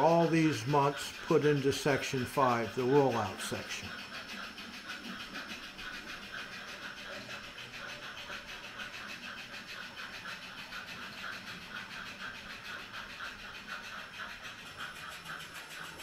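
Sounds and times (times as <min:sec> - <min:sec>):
model train running: 0:00.0 - 0:16.0.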